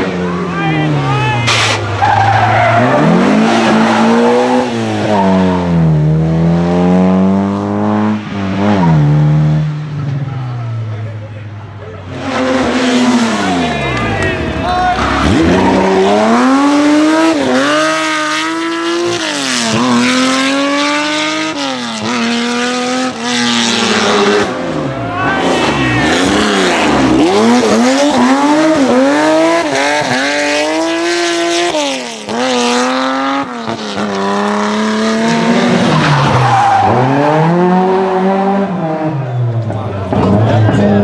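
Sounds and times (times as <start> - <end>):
rally car engine revving: 0.0 - 41.0
tyres squealing: 0.3 - 5.4.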